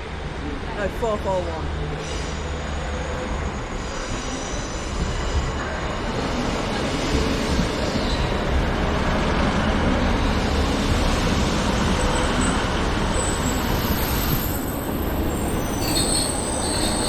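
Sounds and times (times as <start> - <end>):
train engines and wheels rumbling: 0.0 - 17.0
high wheel squeal: 2.0 - 6.2, 12.0 - 17.0.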